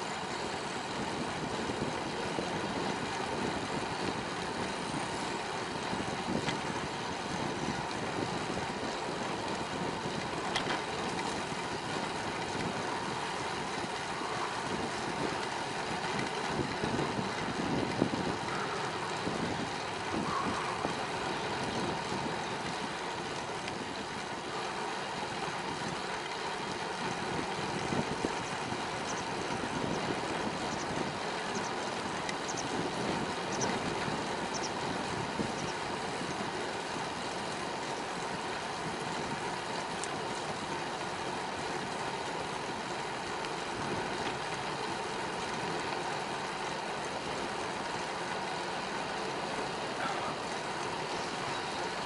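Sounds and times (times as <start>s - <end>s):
bicycle tyre rumble: 0.0s - 52.0s
faint ticks: 6.4s - 6.6s, 23.5s - 23.8s, 28.3s - 32.8s, 33.5s - 34.8s, 39.7s - 40.2s.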